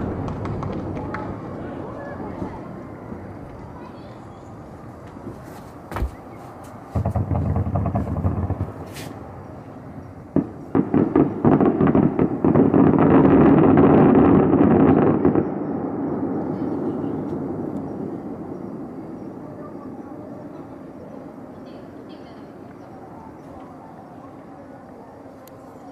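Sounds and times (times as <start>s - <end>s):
fireworks banging: 0.0s - 23.8s
fireworks crackling: 0.0s - 25.9s.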